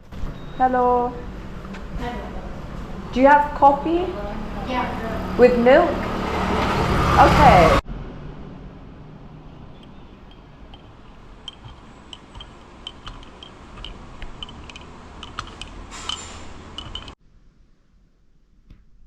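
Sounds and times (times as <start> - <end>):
steady background hum: 0.0 - 6.0
cups and utensils clinking: 9.8 - 17.2.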